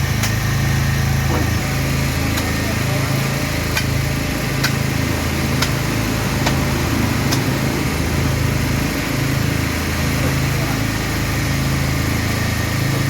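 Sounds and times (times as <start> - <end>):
small engine running: 0.0 - 13.0
sharp clicks: 4.6 - 4.8, 7.3 - 7.5.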